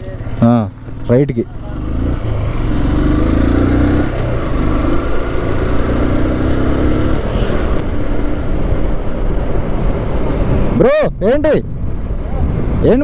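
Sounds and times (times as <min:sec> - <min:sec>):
motorcycle engine running: 0:00.0 - 0:10.7
road and wind noise: 0:00.0 - 0:13.0.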